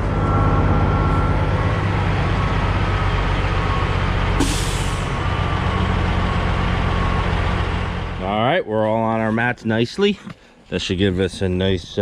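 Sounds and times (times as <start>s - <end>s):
diesel engine running: 0.0s - 8.4s.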